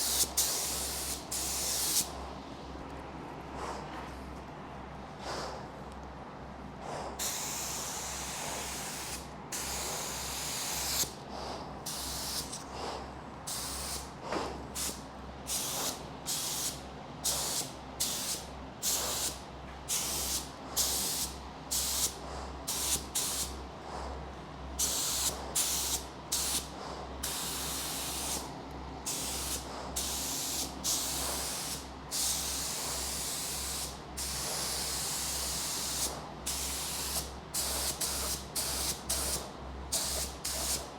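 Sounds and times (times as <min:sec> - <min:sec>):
paint spray gun hissing: 0:00.0 - 0:02.1, 0:07.2 - 0:11.1, 0:11.9 - 0:12.6, 0:13.5 - 0:14.1, 0:14.8 - 0:22.1, 0:24.8 - 0:26.6, 0:27.2 - 0:28.4, 0:29.1 - 0:40.9.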